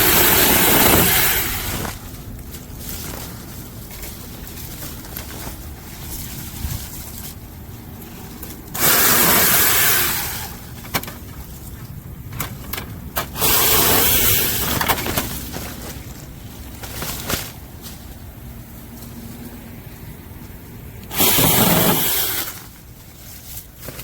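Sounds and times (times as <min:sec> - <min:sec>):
electric chainsaw cutting wood: 0:00.0 - 0:02.0, 0:08.7 - 0:10.6, 0:13.3 - 0:14.9, 0:21.1 - 0:22.7
handling noise: 0:00.0 - 0:09.7, 0:10.5 - 0:19.6.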